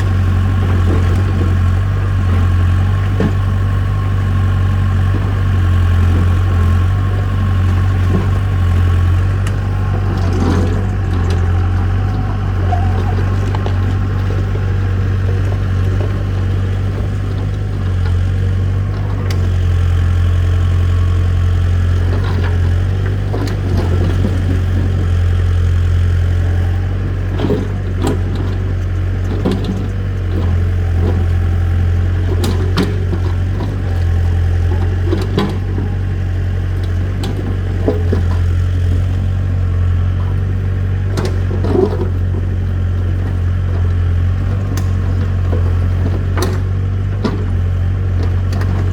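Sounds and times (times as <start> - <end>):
engine running: 0.0 - 48.9.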